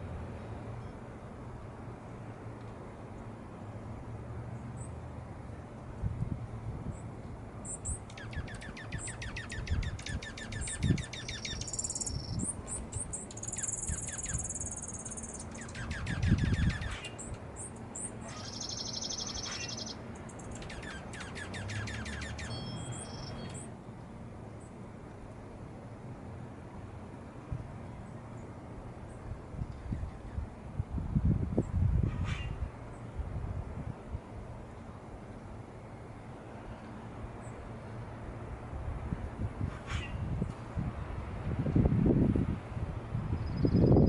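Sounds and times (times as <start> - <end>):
songbirds singing: 6.9 - 23.8, 43.3 - 44.0.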